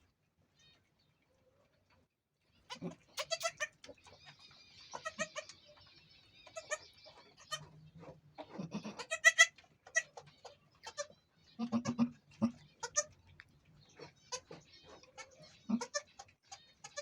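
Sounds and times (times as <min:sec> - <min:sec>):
goats bleating: 0:08.6 - 0:10.1, 0:10.9 - 0:13.1, 0:15.2 - 0:16.2.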